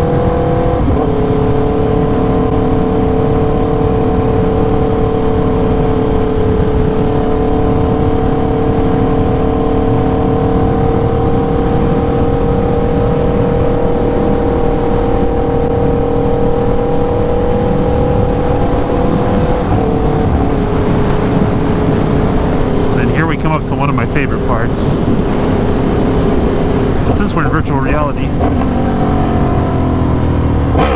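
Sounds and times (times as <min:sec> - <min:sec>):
motorcycle engine cruising: 0:00.0 - 0:30.9
wind rush: 0:00.0 - 0:30.9.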